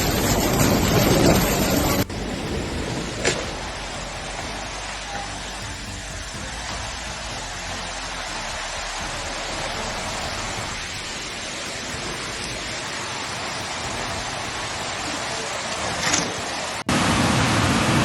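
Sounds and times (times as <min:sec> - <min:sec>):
low rumble: 0:00.0 - 0:18.0
water rushing: 0:00.0 - 0:18.0.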